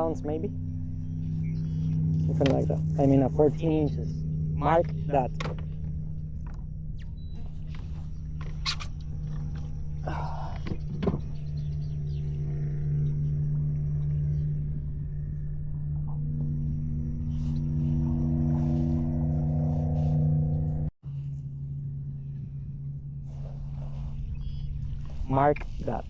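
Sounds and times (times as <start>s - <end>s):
electric motor hum with tones: 0.0s - 26.0s.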